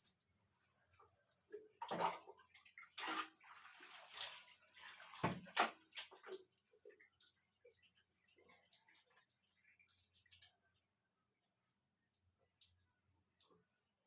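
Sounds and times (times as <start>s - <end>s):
water pouring over hair: 2.0s - 10.6s.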